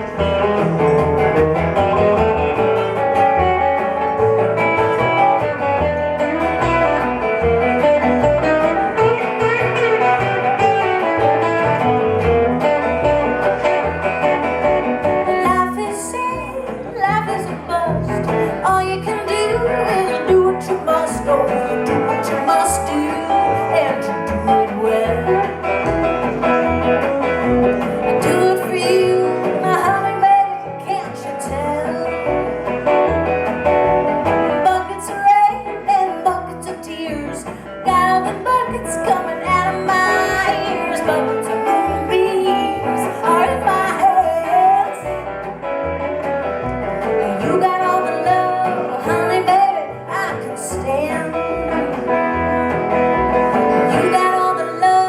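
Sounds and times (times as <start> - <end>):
plucked acoustic guitar: 0.0 - 55.0
person singing: 15.2 - 25.7, 28.0 - 32.5, 34.6 - 45.2, 47.2 - 52.4, 53.5 - 55.0.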